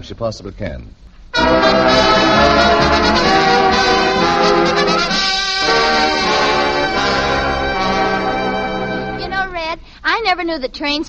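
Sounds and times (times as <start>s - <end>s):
brass dance band playing: 1.3s - 9.6s.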